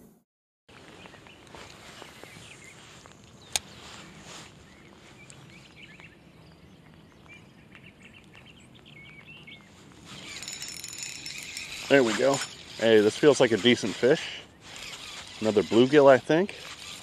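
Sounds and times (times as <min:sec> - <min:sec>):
high bird chirps: 0:01.0 - 0:12.8.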